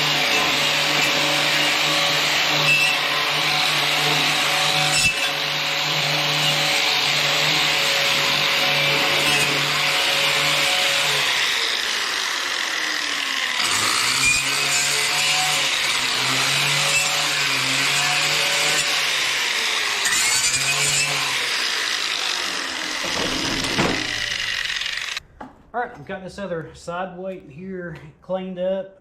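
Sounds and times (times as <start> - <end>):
angle grinder wire brush scrubbing metal: 0.0 - 25.2
grinder knock: 22.4 - 25.7.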